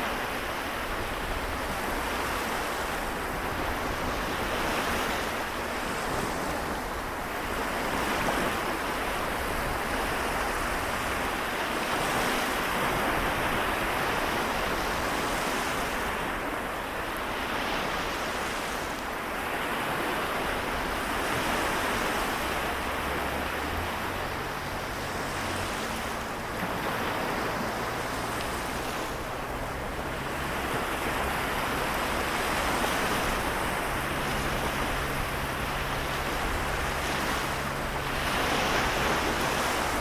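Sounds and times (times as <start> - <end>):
small waves washing onto shore: 0.0 - 40.0.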